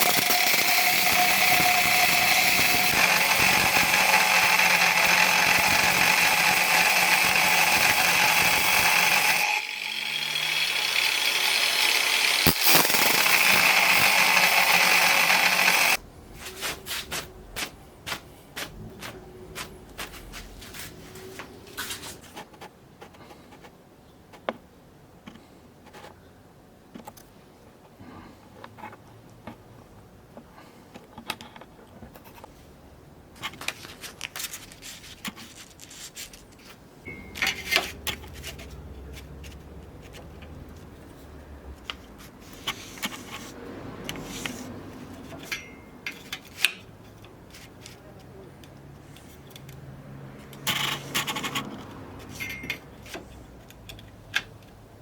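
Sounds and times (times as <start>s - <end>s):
loud metalworking noise: 0.0s - 16.0s, 37.1s - 38.6s.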